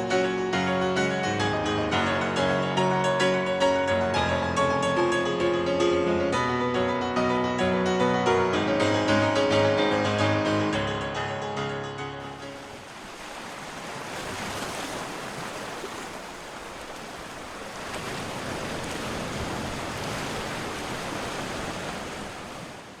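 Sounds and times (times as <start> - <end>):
sea waves rushing: 12.2 - 23.0.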